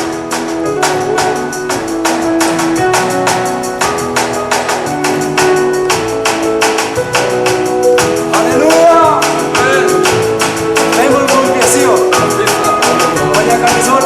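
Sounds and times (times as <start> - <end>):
fast percussion beat: 0.0 - 14.0
worship band music: 0.0 - 14.0
person singing: 8.4 - 14.0.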